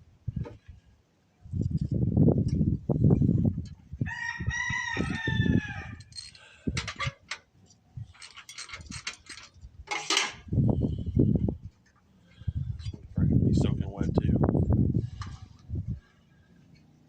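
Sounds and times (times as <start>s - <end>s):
rooster crowing: 4.0s - 6.1s.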